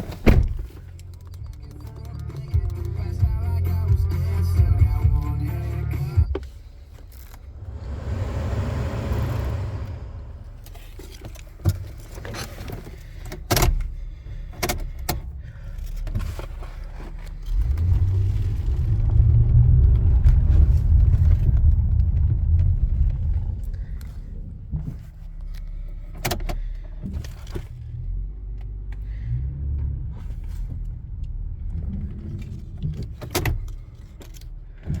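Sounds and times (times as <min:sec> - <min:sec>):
truck engine rumble: 0:00.0 - 0:35.0
sharp clicks: 0:00.9 - 0:03.4.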